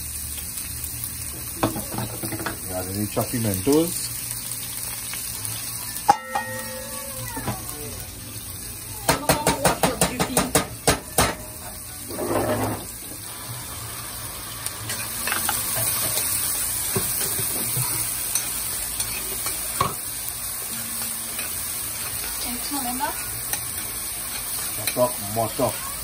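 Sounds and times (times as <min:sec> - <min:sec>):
vegetables sizzling in oil: 0:00.0 - 0:26.0
utensil knocking on pot: 0:09.1 - 0:11.4.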